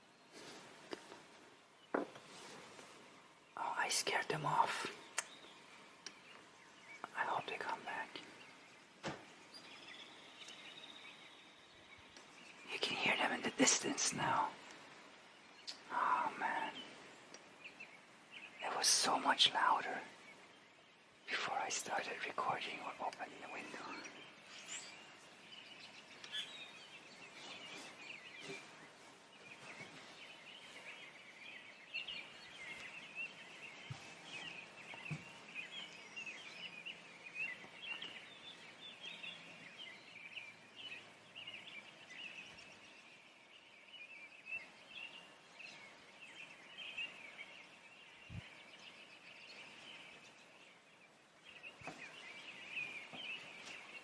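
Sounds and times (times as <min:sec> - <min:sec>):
distant songbird chorus: 0:00.0 - 0:54.0
faint knock: 0:01.9 - 0:02.2, 0:09.0 - 0:09.3.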